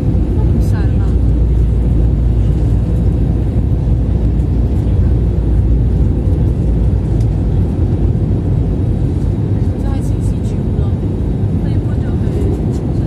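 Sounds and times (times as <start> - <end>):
airplane cabin engine rumble: 0.0 - 13.0.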